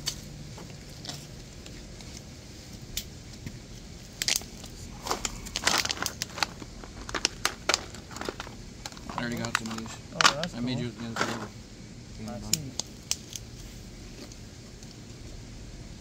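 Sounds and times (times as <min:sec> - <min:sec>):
low steady background noise: 0:00.0 - 0:16.0
sharp clicks and crackles: 0:04.2 - 0:10.6, 0:12.5 - 0:13.5.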